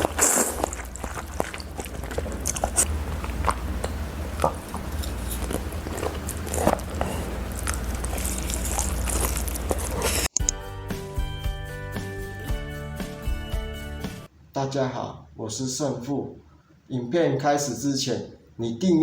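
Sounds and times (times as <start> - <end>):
person biting and chewing food: 0.0 - 10.5
music: 10.3 - 14.3.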